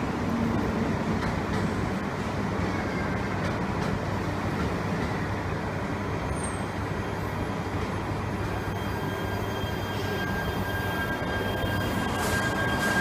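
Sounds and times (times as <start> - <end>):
low rumble of trains: 0.0 - 13.0
train pulling out: 3.2 - 13.0.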